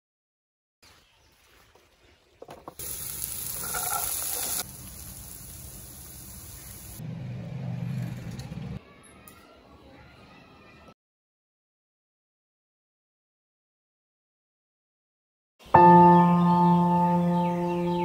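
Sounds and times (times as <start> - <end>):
beans sizzling in hot oil: 2.4 - 7.0.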